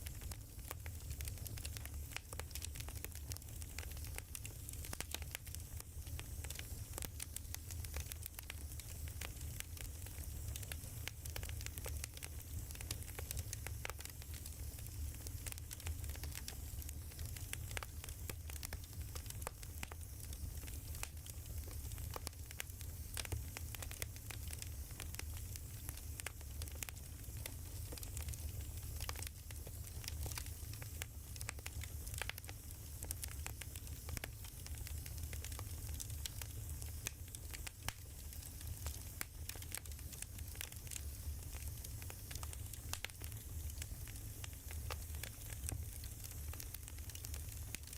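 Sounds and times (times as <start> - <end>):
fire pops and snaps: 0.0 - 47.9
soft hiss: 0.0 - 47.9
wood fire crackling: 0.0 - 47.9.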